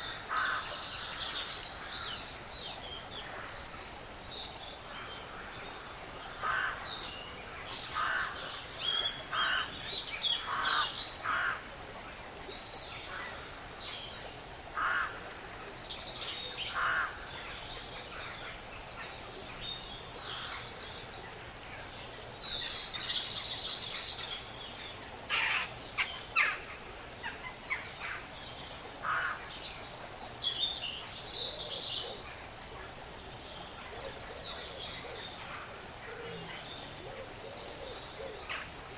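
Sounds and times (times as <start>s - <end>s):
background hiss: 0.0s - 38.9s
birds chirping and twittering: 12.4s - 38.9s.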